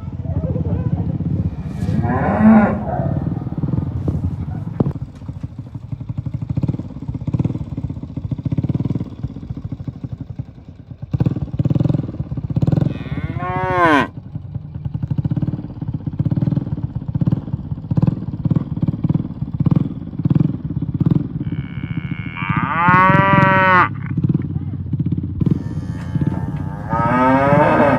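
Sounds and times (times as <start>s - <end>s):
cattle mooing: 0.0s - 4.9s, 12.8s - 14.1s, 21.4s - 24.7s, 25.4s - 27.9s
low rumble: 0.0s - 7.3s, 23.2s - 27.9s.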